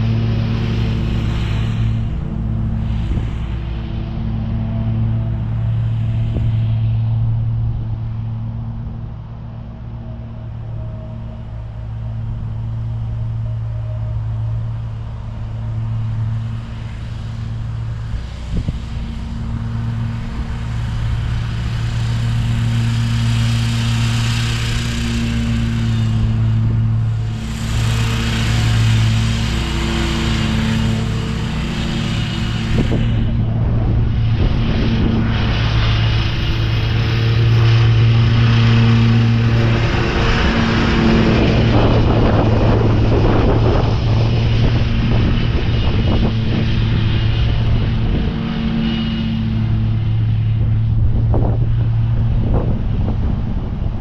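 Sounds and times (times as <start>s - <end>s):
blades mulching leaves: 12.9s - 50.1s
lawn mower engine running: 15.9s - 53.7s.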